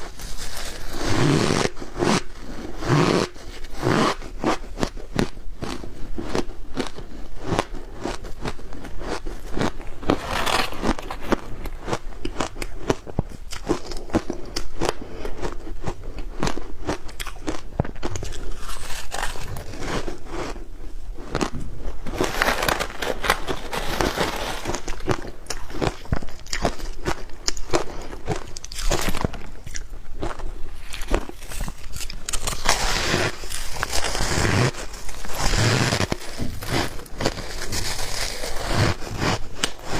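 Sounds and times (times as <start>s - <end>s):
ice cubes crunching in mouth: 15.4s - 20.6s, 22.1s - 39.8s.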